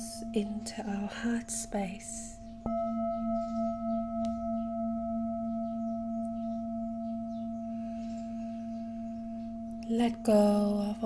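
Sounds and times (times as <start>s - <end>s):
singing bowl ringing: 0.0s - 11.0s.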